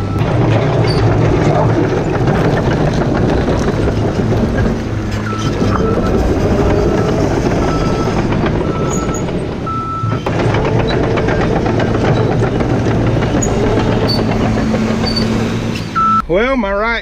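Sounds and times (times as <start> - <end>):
excavator engine and hydraulics: 0.0 - 16.4.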